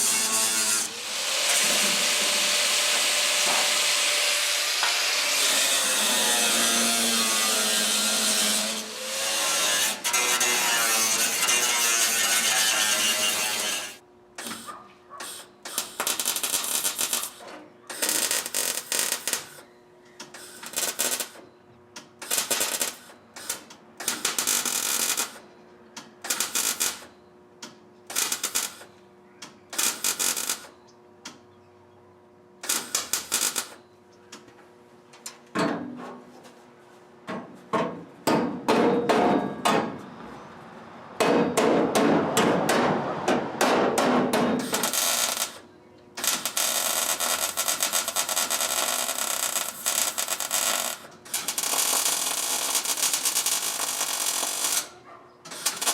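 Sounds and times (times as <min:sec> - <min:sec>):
welder crackling: 0:00.0 - 0:14.6, 0:15.7 - 0:19.6, 0:20.4 - 0:21.4, 0:22.2 - 0:25.4, 0:26.3 - 0:27.1, 0:28.1 - 0:28.9, 0:29.7 - 0:30.7, 0:32.6 - 0:33.8, 0:44.6 - 0:54.9, 0:55.5 - 0:55.9.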